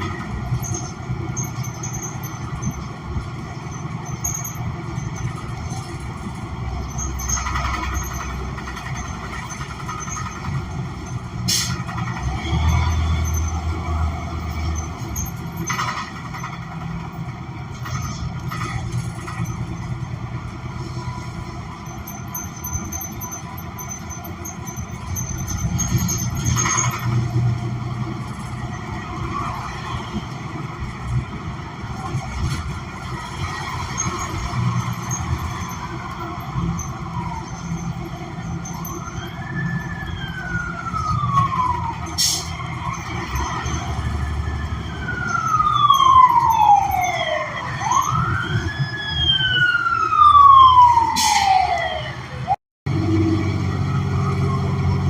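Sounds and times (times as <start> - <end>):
rattles and clicks: 0.0 - 47.2
bus engine rumbling: 0.0 - 55.0
emergency vehicle siren wailing: 0.0 - 55.0.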